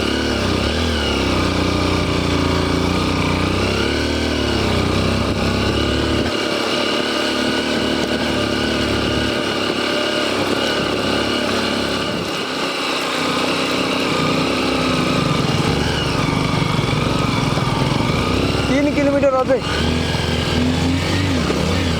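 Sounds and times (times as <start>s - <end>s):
motorcycle engine running: 0.0s - 21.9s.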